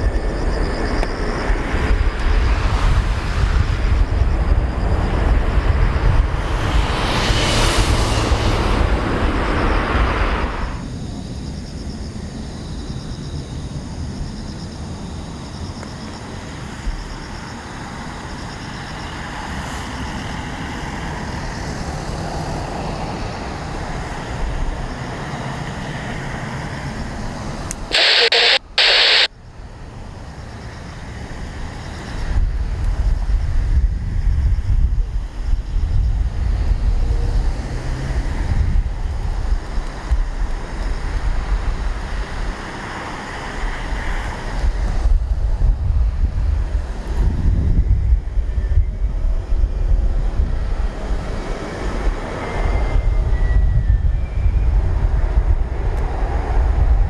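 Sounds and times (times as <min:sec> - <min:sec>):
jet engine rumble: 0:22.4 - 0:29.3
short loud bursts of hiss: 0:27.9 - 0:29.3.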